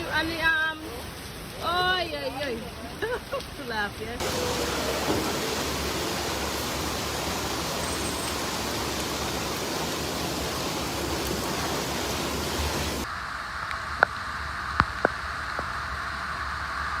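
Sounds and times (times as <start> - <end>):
running floodwater: 0.0 - 13.4
heavy downpour hiss: 0.0 - 17.0.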